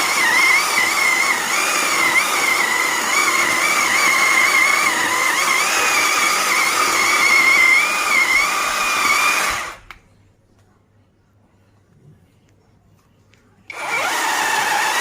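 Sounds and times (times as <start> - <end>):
chainsaw engine whining: 0.0 - 9.8, 13.7 - 15.0.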